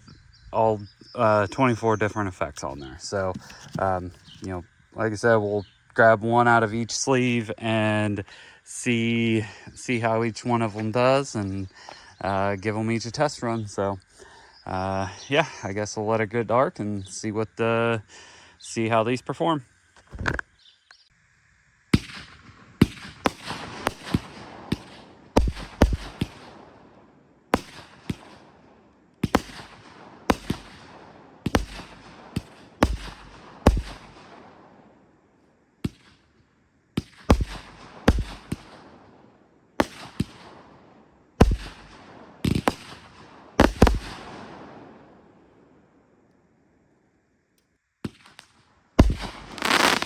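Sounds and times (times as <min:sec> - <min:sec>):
fireworks bangs and crackle: 0:21.9 - 0:35.0, 0:35.8 - 0:36.2, 0:37.0 - 0:45.2, 0:48.0 - 0:50.0.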